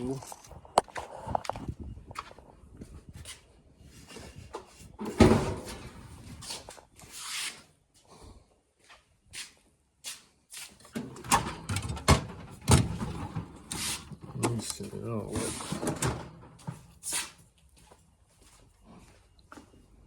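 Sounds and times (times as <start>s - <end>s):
tool box being searched: 10.9s - 17.4s.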